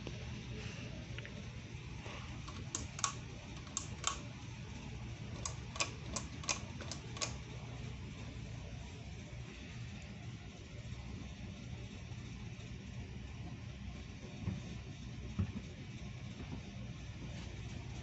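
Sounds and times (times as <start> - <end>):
ceiling fan humming: 0.0 - 18.0
sharp clicks: 2.5 - 4.3, 5.4 - 7.4.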